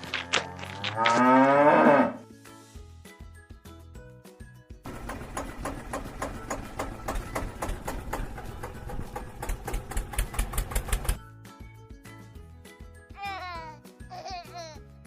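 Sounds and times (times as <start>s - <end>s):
tractor engine chugging: 4.9s - 11.2s.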